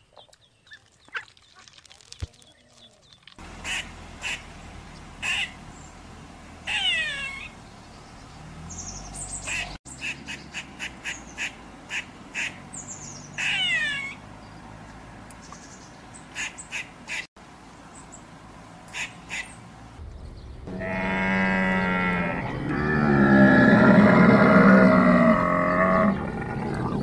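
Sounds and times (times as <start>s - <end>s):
squirrel chirping: 6.7s - 7.7s, 8.7s - 14.2s.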